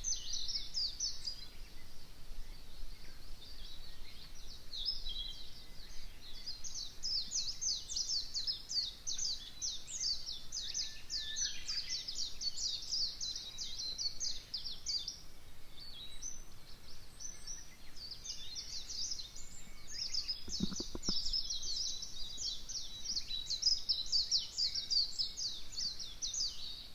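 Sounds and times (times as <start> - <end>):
birds chirping: 15.8 - 26.9
low bird call: 19.4 - 21.8.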